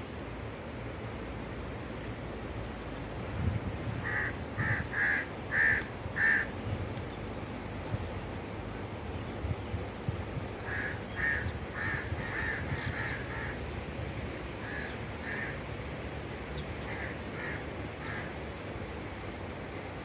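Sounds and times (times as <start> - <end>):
low background noise: 0.0 - 20.0
bird calls: 10.6 - 13.7.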